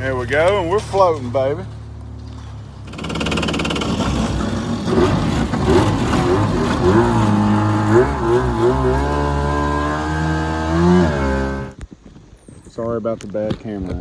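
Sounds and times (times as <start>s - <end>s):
boat engine revving: 2.7s - 11.8s.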